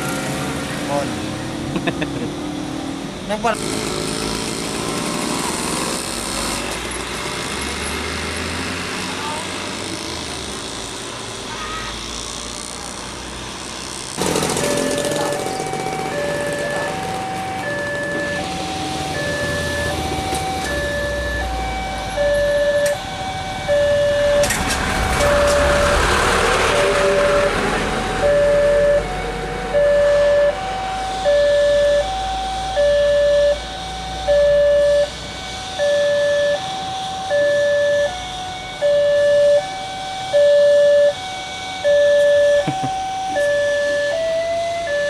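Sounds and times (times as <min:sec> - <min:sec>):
two-tone electronic warning chime: 0:14.4 - 0:26.1, 0:28.2 - 0:41.2, 0:41.8 - 0:45.0
train passing rush: 0:24.5 - 0:28.3.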